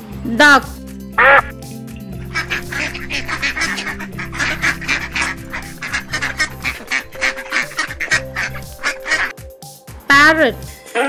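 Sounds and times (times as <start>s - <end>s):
ducks quacking: 1.2s - 9.3s.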